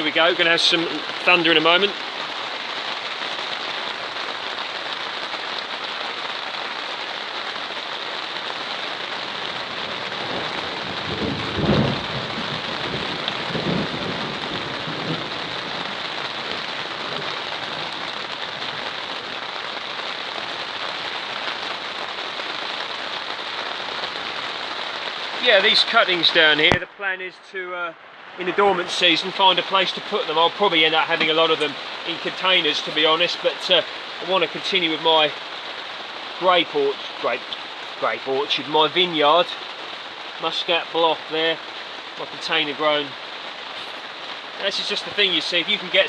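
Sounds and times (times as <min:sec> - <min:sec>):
thunder rumbling: 0:00.0 - 0:02.1, 0:08.3 - 0:27.0, 0:28.3 - 0:46.0
heavy rain on plastic cover: 0:00.0 - 0:46.0.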